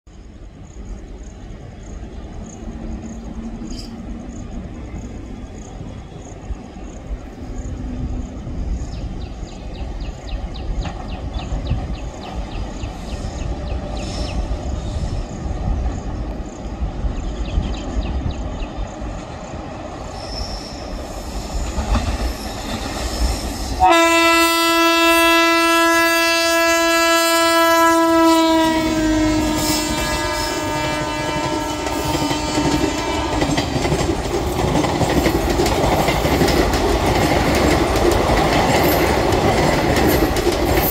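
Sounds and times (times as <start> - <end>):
train coaches rumbling by: 0.1 - 40.9
wheels clicking over rail joints: 21.4 - 23.4, 30.8 - 40.9
locomotive horn: 23.8 - 33.7.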